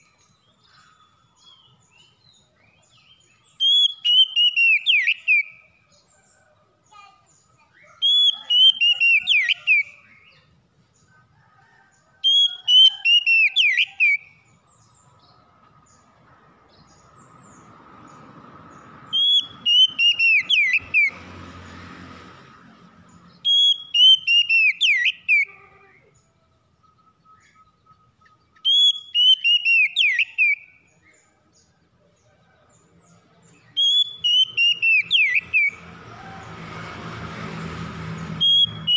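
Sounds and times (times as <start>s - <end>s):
bird singing whistled phrase: 2.9s - 5.6s, 7.8s - 10.4s, 19.1s - 21.1s, 26.9s - 30.8s, 33.8s - 35.7s.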